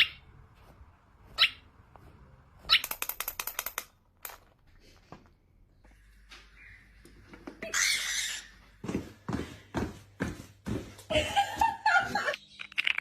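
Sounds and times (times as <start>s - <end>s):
parrot squawk: 1.4s - 1.6s, 7.7s - 8.5s
sharp clicks: 2.7s - 4.4s.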